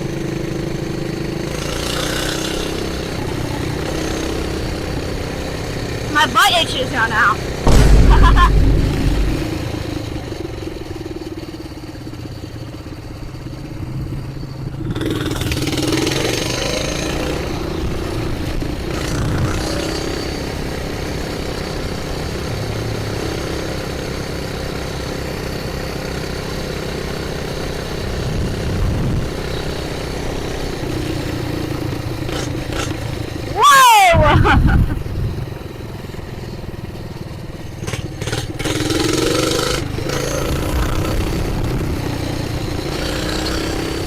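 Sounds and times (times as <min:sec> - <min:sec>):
mini bike engine revving: 0:00.0 - 0:07.5, 0:14.7 - 0:25.0, 0:26.9 - 0:35.7, 0:37.4 - 0:44.0.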